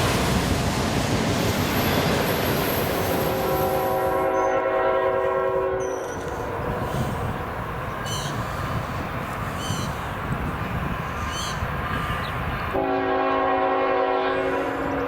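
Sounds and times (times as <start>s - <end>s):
freight train rumbling past: 0.0s - 15.0s
locomotive air horn chord: 3.3s - 6.0s, 12.8s - 15.0s.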